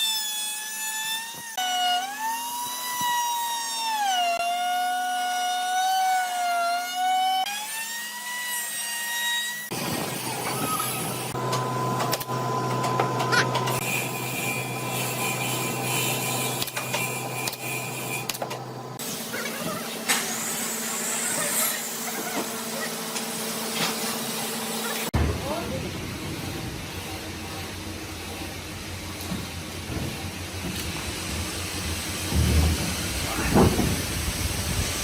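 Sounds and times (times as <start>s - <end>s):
woodworking tool motor whine: 0.0s - 35.0s
machine running with noisy rush: 9.7s - 35.0s.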